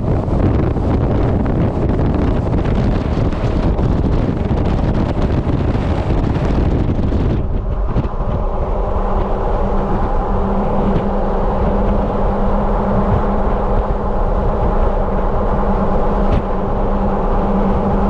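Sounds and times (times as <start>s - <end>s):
engine and road drone: 0.0s - 18.0s
wind on microphone: 0.0s - 18.0s.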